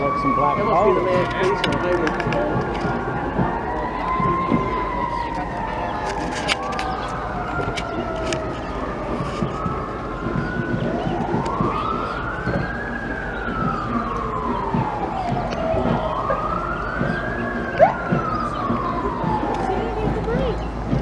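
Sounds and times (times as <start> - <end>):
police siren wailing: 0.0 - 21.0
short sharp siren chirp: 13.6 - 19.0.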